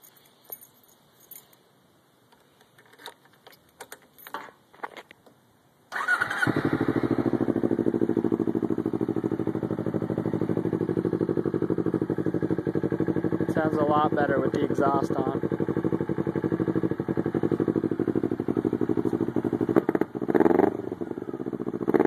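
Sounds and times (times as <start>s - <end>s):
keys jingling: 0.0s - 1.6s, 2.8s - 5.1s
motorcycle engine starting and idling: 5.9s - 22.0s.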